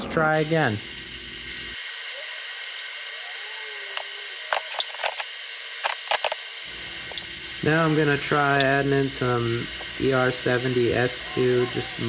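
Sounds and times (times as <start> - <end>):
welding arc hissing: 0.0 - 12.0
short clicks and crackles: 3.8 - 7.4.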